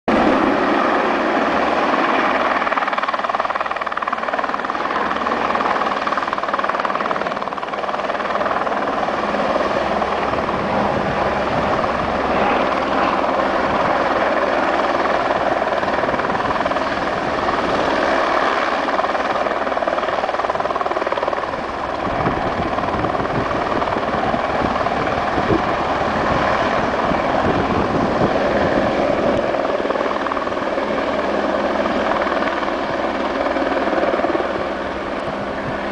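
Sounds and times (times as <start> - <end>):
helicopter rotor chop: 0.1 - 35.9.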